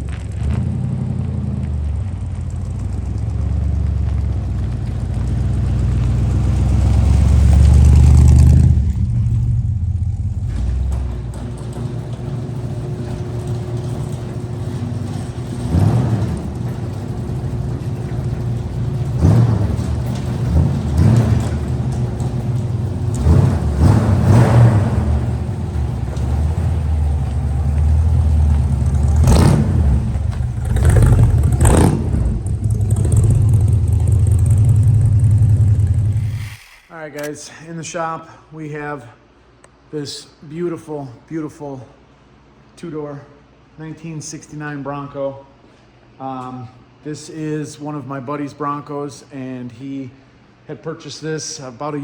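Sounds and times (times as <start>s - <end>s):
car engine rumbling and revving: 0.0s - 37.3s.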